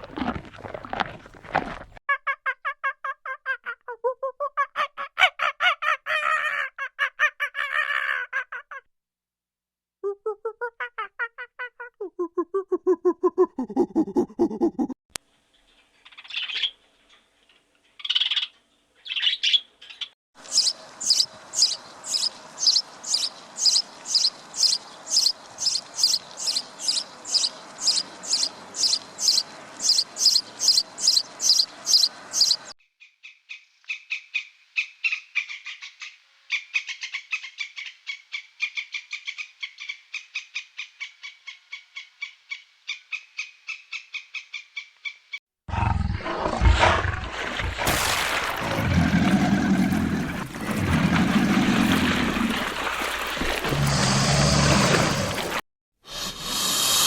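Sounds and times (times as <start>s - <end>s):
high chirping bird calls: 18.0s - 32.7s.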